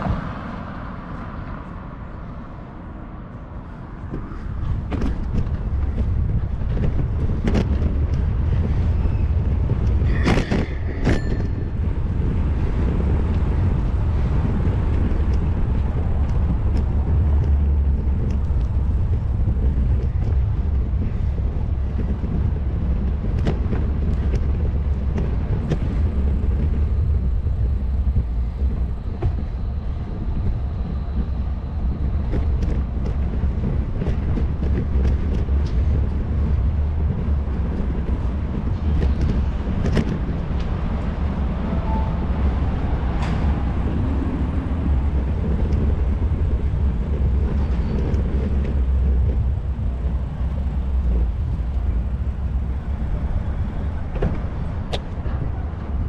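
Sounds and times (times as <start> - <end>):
road and wind noise: 0.0 - 56.0
bicycle clicks and rattles: 4.0 - 41.4.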